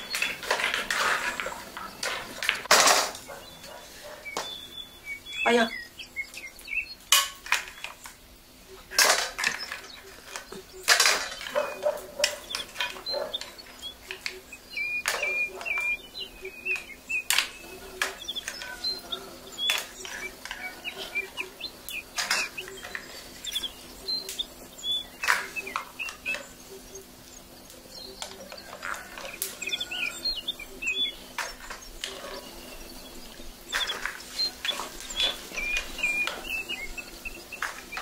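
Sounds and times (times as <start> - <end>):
objects knocking and clattering: 0.0 - 4.6, 7.1 - 8.2, 8.9 - 15.9, 22.0 - 23.6
small birds chirping: 0.0 - 38.0.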